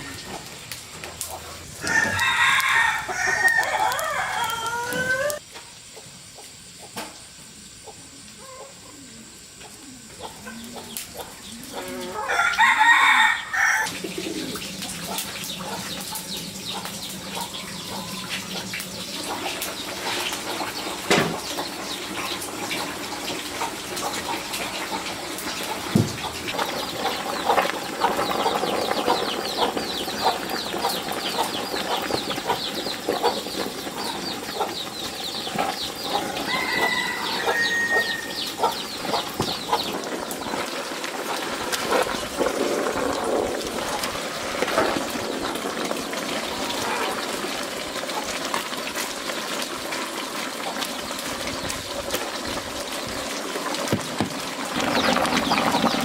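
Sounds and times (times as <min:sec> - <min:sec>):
rooster crowing: 0:01.8 - 0:05.4, 0:11.7 - 0:14.4, 0:36.0 - 0:38.8
hens clucking: 0:07.8 - 0:12.5, 0:13.8 - 0:48.7.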